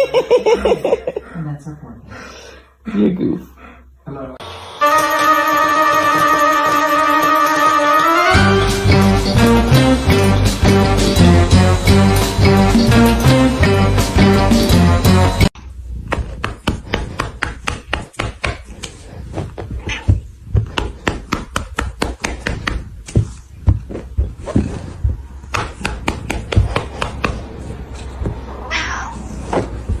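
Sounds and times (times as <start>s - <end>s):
knocks and taps: 25.5s - 27.5s
cat meowing: 28.6s - 29.4s.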